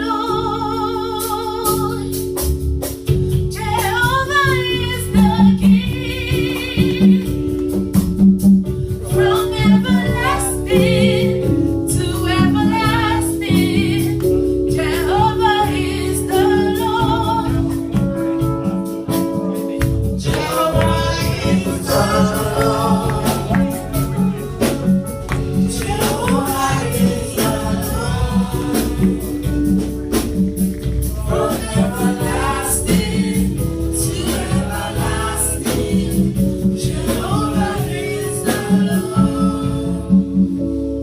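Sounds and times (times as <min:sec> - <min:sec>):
woman singing: 0:00.0 - 0:02.2, 0:03.6 - 0:07.6, 0:09.1 - 0:18.0
bass and drum beat: 0:00.0 - 0:41.0
sustained keyboard chords: 0:00.0 - 0:41.0.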